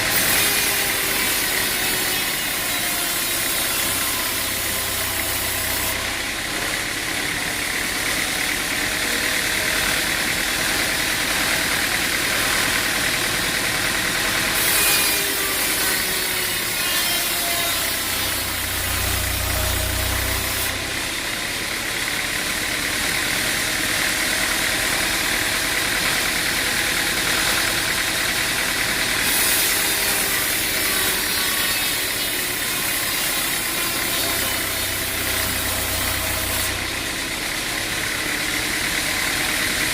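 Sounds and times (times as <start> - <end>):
machine engine droning: 0.0 - 39.9.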